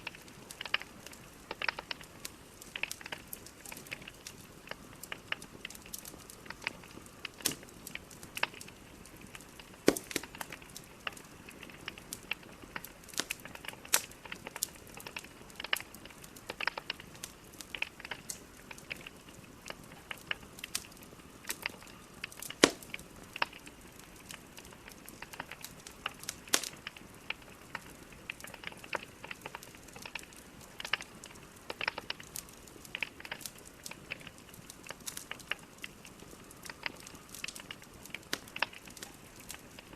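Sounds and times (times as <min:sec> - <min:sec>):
logs crackling in fireplace: 0:00.0 - 0:39.9
sharp pops and snaps: 0:00.0 - 0:39.9
soft fire hiss: 0:00.0 - 0:39.9.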